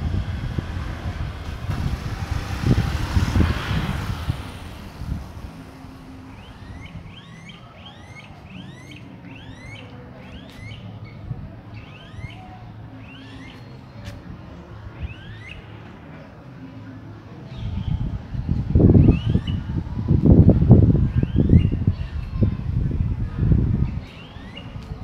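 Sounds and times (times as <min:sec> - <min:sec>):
birds whistling rising whines: 0:00.0 - 0:14.0, 0:14.9 - 0:15.8, 0:17.5 - 0:19.9, 0:20.6 - 0:22.6, 0:23.8 - 0:25.0
street noise rumble: 0:00.0 - 0:25.0.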